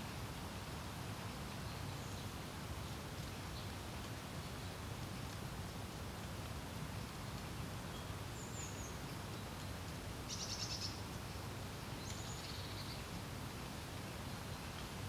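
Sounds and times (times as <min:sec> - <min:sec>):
songbirds calling: 0:01.2 - 0:06.3, 0:07.4 - 0:13.2.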